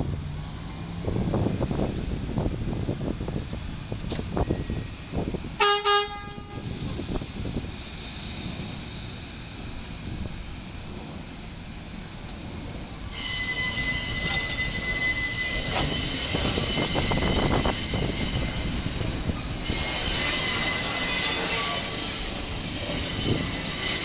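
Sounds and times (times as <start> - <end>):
low rumble of train cars: 0.0 - 24.0
train wheels squealing: 4.4 - 5.0, 6.6 - 10.4, 13.0 - 24.0.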